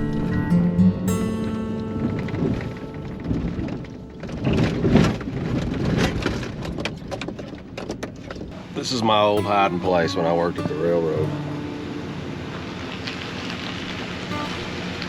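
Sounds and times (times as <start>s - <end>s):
guitar music: 0.0s - 7.8s, 8.4s - 15.0s
low rumble: 0.0s - 8.8s
rain pattering: 0.0s - 15.0s.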